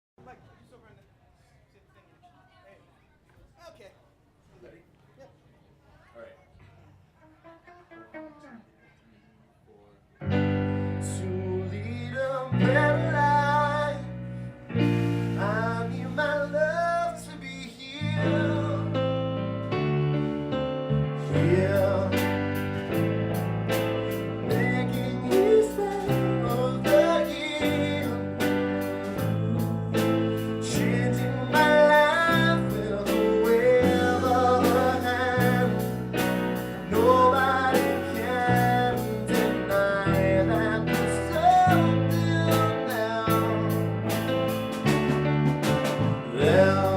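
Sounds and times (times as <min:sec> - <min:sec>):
guitar: 0:10.2 - 0:46.9
person singing: 0:10.4 - 0:14.2, 0:14.8 - 0:19.1, 0:21.2 - 0:23.1, 0:24.0 - 0:45.1, 0:46.1 - 0:46.9
band playing a song: 0:14.8 - 0:46.9
drums beating: 0:22.2 - 0:29.4, 0:30.0 - 0:46.9.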